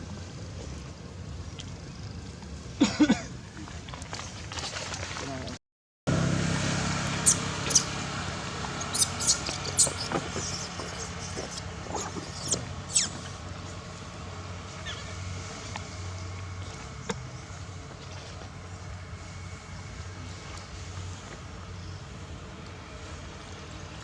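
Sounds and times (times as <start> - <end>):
steady low hum: 6.1 - 24.0
baby monkey squeaking: 7.2 - 8.0, 8.8 - 13.3, 14.8 - 15.2.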